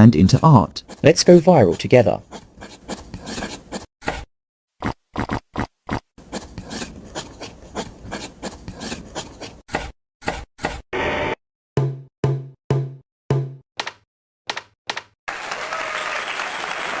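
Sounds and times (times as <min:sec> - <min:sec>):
rasping and scraping by hand: 0:00.3 - 0:10.8.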